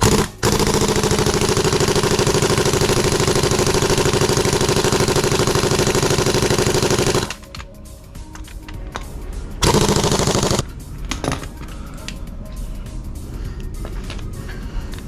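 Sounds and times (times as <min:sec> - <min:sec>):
impact wrench hammering: 0:00.0 - 0:07.4, 0:09.6 - 0:10.6.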